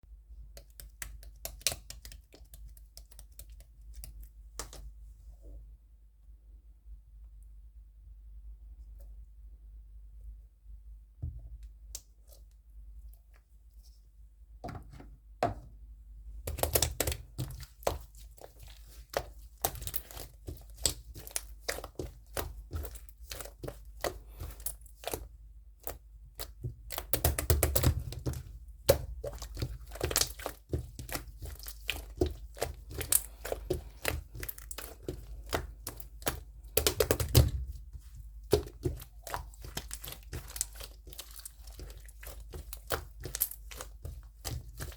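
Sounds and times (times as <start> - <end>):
rustling and crinkling: 25.9 - 44.9.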